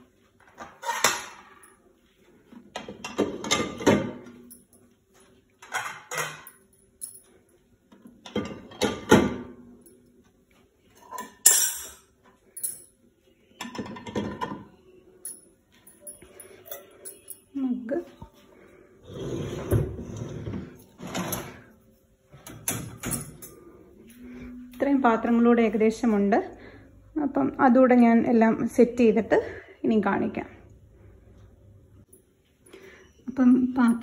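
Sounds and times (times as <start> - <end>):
dishes clattering in dishwasher rack: 2.8 - 4.3, 5.6 - 6.6, 8.2 - 9.6, 13.6 - 14.7, 22.4 - 23.4.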